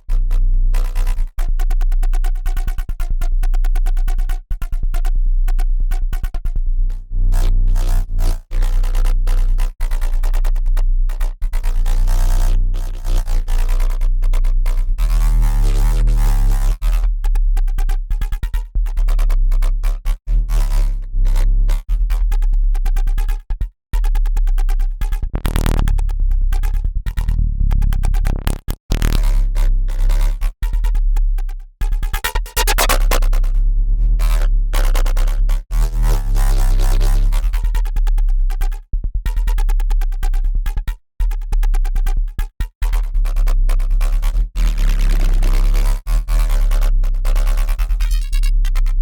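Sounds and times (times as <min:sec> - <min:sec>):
distorted synth bass riff: 0:04.6 - 0:10.4, 0:11.1 - 0:17.3, 0:24.0 - 0:49.0.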